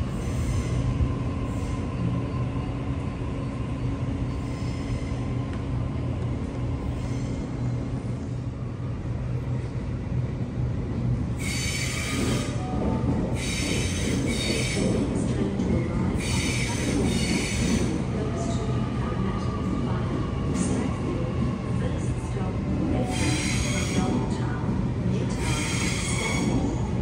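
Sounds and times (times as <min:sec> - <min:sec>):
train electric hum: 0:00.0 - 0:27.0
train rumble: 0:00.0 - 0:27.0
train wheels squealing: 0:00.1 - 0:00.8, 0:04.3 - 0:05.2, 0:11.4 - 0:12.6, 0:13.4 - 0:15.0, 0:16.2 - 0:17.9, 0:23.0 - 0:24.2, 0:25.4 - 0:26.8.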